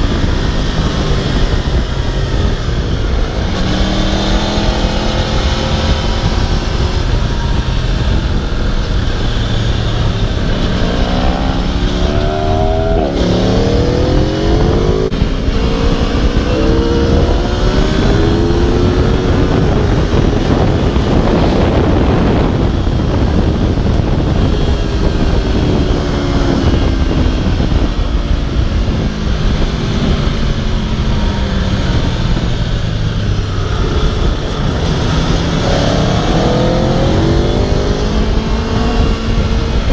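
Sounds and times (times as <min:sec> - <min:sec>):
motorcycle engine revving: 0:00.0 - 0:39.9
rushing noise: 0:00.0 - 0:39.9.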